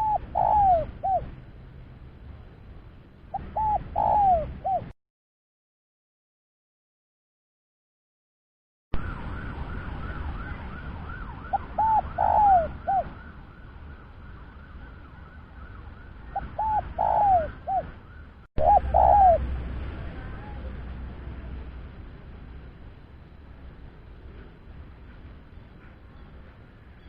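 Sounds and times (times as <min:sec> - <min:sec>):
dove cooing: 0:00.0 - 0:01.3, 0:03.3 - 0:04.9, 0:11.5 - 0:13.2, 0:16.3 - 0:18.0, 0:18.6 - 0:20.7
steady low rumble: 0:00.0 - 0:04.9, 0:17.6 - 0:27.0.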